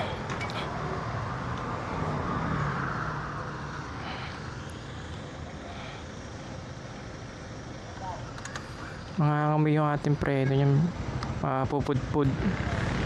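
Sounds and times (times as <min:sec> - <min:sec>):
vehicle passing: 0:00.0 - 0:07.8, 0:12.0 - 0:13.0
road traffic background: 0:00.0 - 0:13.0.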